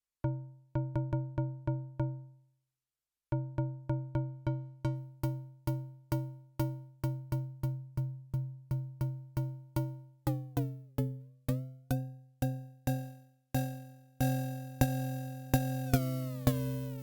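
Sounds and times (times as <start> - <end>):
plucky synth notes: 15.6 - 17.0.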